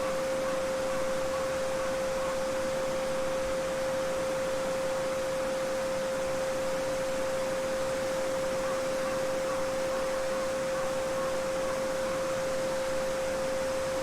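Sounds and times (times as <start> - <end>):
pure sine tone: 0.0 - 14.0.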